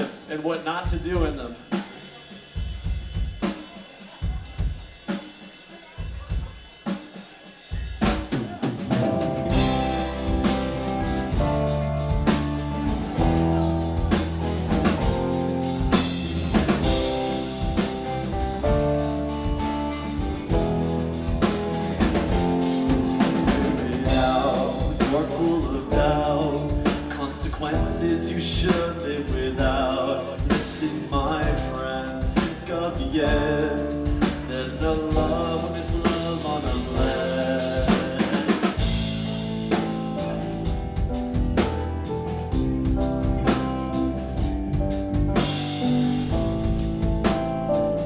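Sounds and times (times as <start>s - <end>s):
drum kit playing slow beat: 0.0s - 48.0s
deep sustained bass notes: 9.4s - 29.9s, 38.8s - 48.0s.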